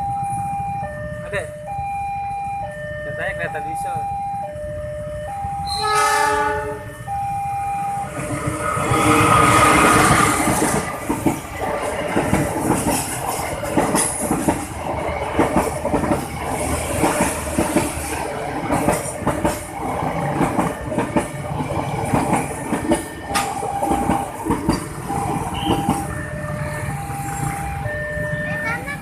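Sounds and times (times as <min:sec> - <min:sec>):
train wheels clacking on rail joints: 0:09.0 - 0:26.3.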